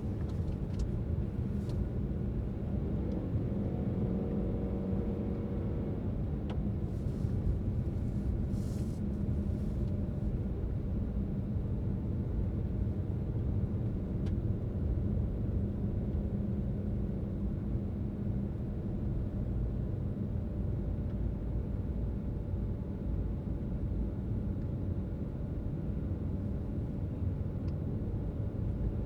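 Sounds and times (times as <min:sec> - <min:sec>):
car engine and tyres rumbling: 0:00.0 - 0:29.0.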